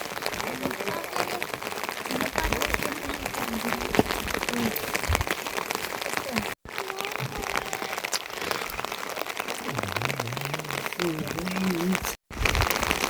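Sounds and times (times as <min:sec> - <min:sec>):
faint voice: 0:00.0 - 0:12.2
rain falling: 0:00.0 - 0:13.0
raindrops ticking on surfaces: 0:00.0 - 0:13.0.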